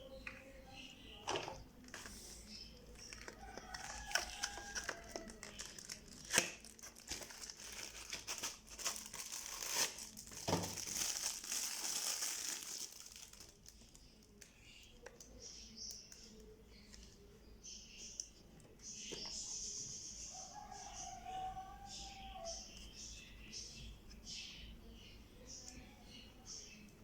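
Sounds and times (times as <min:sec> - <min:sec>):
packaging crinkling and tearing: 0:03.0 - 0:14.5.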